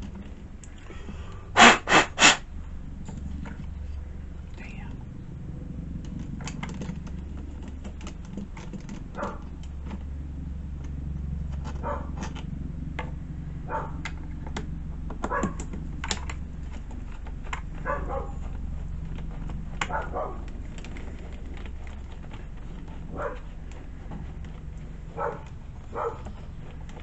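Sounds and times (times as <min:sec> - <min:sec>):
steady low hum: 0:00.0 - 0:27.0
dog barking: 0:09.2 - 0:09.5, 0:11.8 - 0:12.2, 0:13.7 - 0:14.1, 0:15.2 - 0:15.6, 0:17.8 - 0:18.5, 0:19.8 - 0:20.5, 0:23.1 - 0:23.5, 0:25.1 - 0:26.4.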